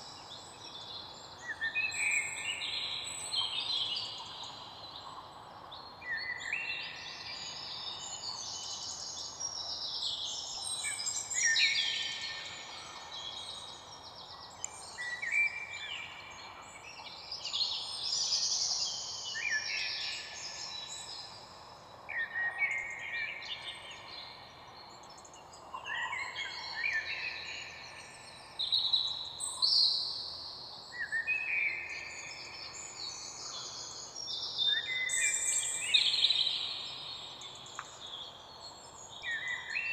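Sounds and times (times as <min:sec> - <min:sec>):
birds singing and chirping: 0:30.8 - 0:39.9.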